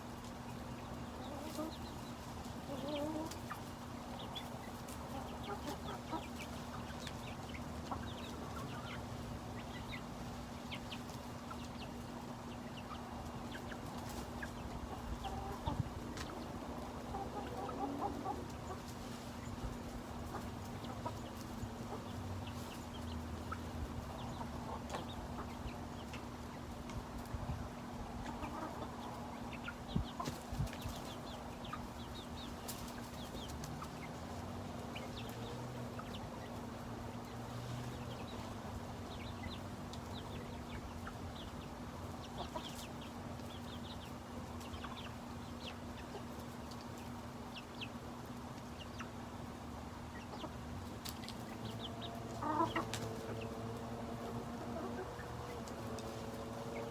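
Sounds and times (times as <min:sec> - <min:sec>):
chickens calling: 0:00.0 - 0:56.9.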